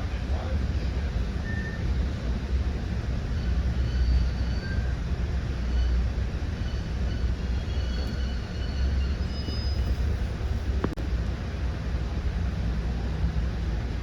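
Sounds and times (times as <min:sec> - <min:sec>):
train rumbling on rails: 0:00.0 - 0:14.0
wheels squealing: 0:06.6 - 0:11.0.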